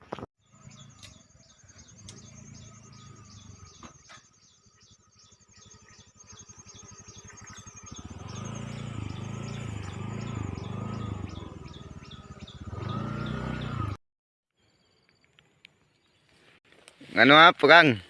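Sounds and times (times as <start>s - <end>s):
low pulsing engine hum: 0.4s - 13.9s.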